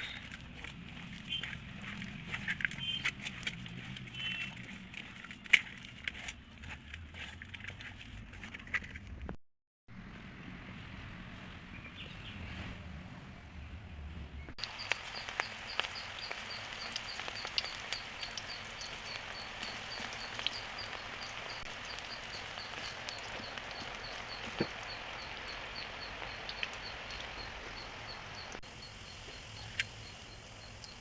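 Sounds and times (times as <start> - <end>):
food deep-frying in hot oil: 0.0 - 6.3, 14.6 - 31.0
faint high chirp: 4.1 - 4.6, 14.6 - 31.0.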